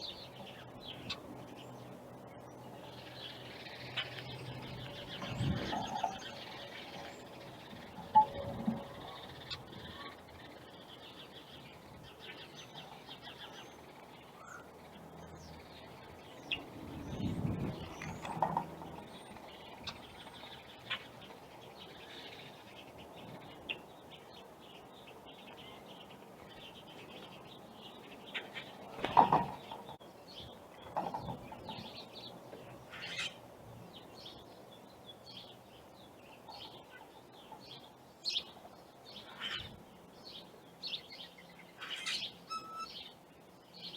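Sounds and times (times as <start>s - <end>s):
small birds chirping: 0.0s - 43.9s
wings flapping: 28.9s - 29.6s.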